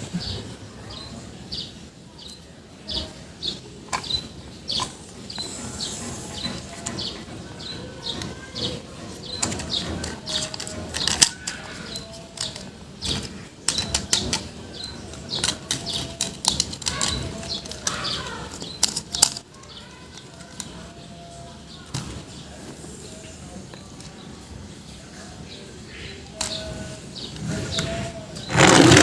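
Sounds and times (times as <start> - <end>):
plastic toys clicking and knocking: 2.3 - 21.1, 26.2 - 29.0.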